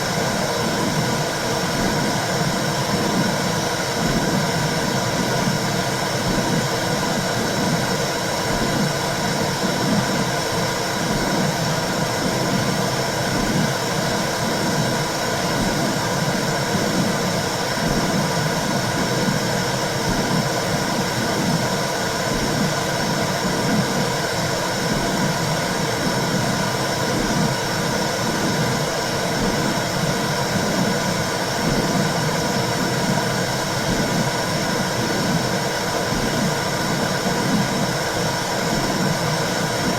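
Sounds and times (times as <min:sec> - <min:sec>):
low heartbeat pulse: 0:02.8 - 0:05.6, 0:10.9 - 0:13.8, 0:14.4 - 0:24.0, 0:24.8 - 0:38.0.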